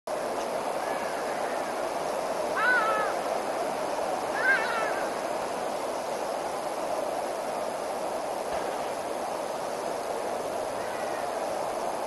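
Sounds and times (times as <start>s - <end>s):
steady rushing background: 0.1s - 12.0s
bird calls: 0.8s - 3.3s, 4.3s - 5.3s, 10.7s - 11.4s.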